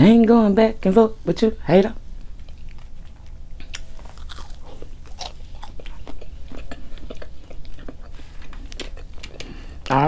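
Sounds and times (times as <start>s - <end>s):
chewing crunchy food: 2.2s - 9.5s.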